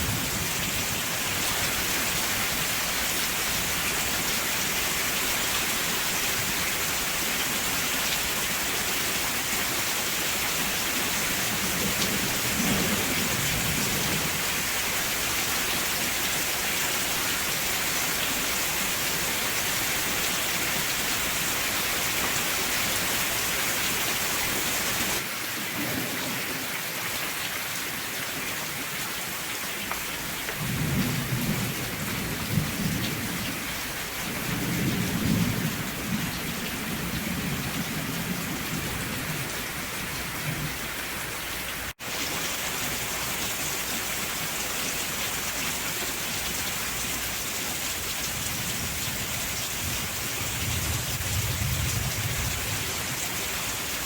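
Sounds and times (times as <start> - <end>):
steady rain falling: 0.0 - 54.0
low thunder rumbling: 11.3 - 14.6, 30.5 - 40.8, 48.4 - 52.9.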